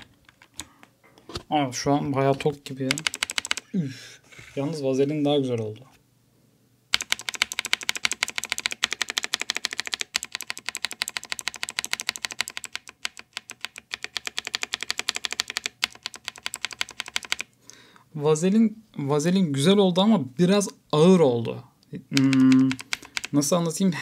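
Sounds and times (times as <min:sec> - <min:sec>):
mechanical keyboard keystrokes: 0:02.9 - 0:03.6, 0:06.9 - 0:17.5, 0:22.2 - 0:23.4.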